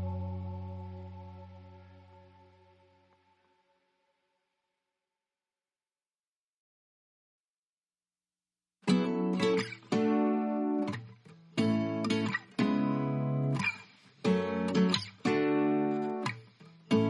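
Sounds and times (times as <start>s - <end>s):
strummed guitar chords: 0.0s - 2.5s.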